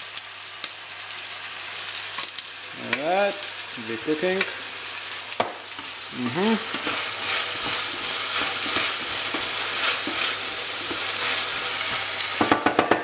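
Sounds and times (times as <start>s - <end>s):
vegetables sizzling in oil: 0.0s - 13.0s
utensil knocking against pan: 12.4s - 13.0s.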